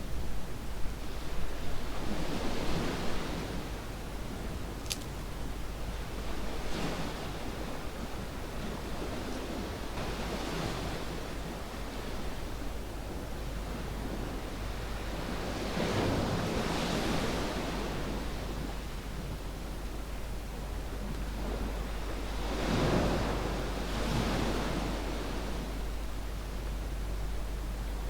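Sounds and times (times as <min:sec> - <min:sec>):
ocean waves on sandy beach: 0:21.4 - 0:25.9.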